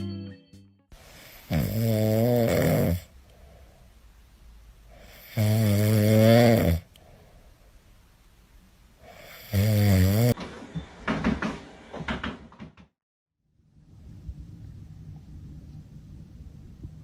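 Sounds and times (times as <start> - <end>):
loud snoring: 1.2 - 3.1, 4.9 - 6.9, 9.0 - 10.4
faint breathing: 3.0 - 4.2, 6.8 - 8.0.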